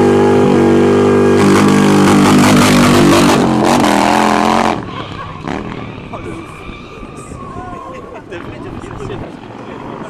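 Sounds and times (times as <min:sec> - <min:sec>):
motorcycle engine revving high: 0:00.0 - 0:07.4.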